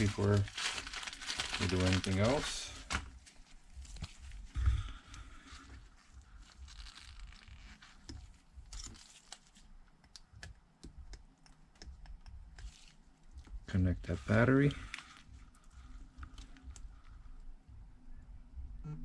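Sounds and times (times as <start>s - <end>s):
plastic crinkling: 0.0s - 9.9s, 12.6s - 17.4s.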